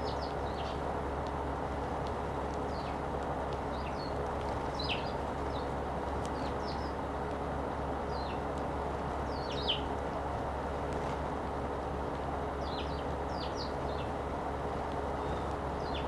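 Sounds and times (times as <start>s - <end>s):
sparrows chirping: 0.0s - 1.0s, 2.5s - 7.2s, 7.9s - 8.6s, 9.2s - 10.3s, 12.4s - 14.4s, 15.1s - 16.0s
low background hum: 0.0s - 16.0s.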